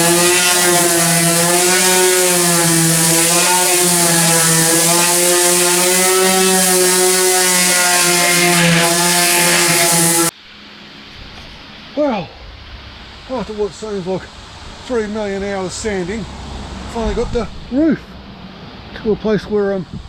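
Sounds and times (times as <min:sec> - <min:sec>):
power sander on car paintwork: 0:00.0 - 0:10.4.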